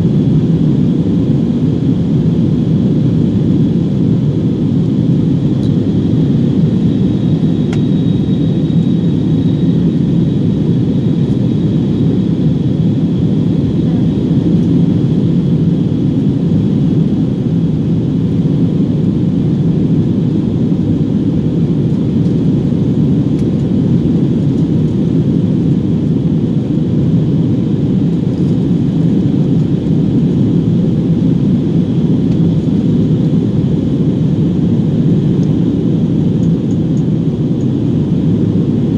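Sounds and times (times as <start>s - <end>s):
faint high whine: 0.0s - 15.7s
jet engines rumbling: 0.0s - 38.9s.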